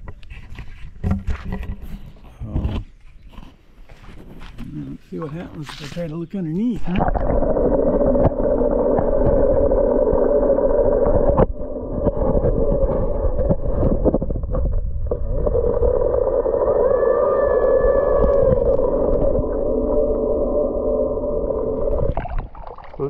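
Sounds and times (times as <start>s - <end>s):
water disturbance: 4.6s - 23.0s
muffled underwater motor hum: 7.1s - 22.2s.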